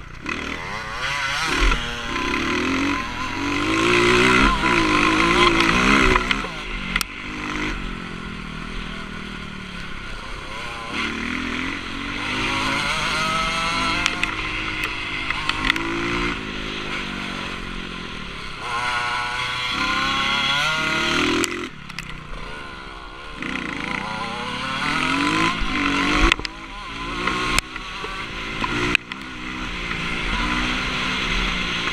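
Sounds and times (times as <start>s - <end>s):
motocross bike engine revving: 0.0s - 31.9s.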